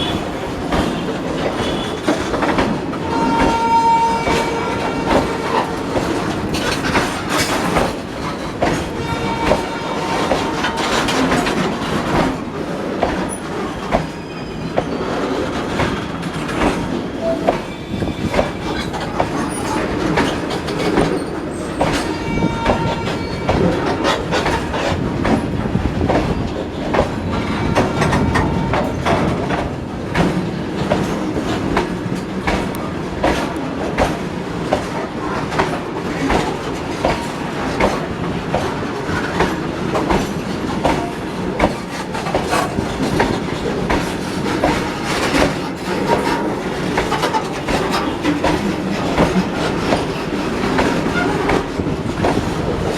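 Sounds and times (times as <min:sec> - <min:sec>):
train wheels clattering over rail joints: 0:00.0 - 0:52.9
steel wheels squealing: 0:14.1 - 0:24.2.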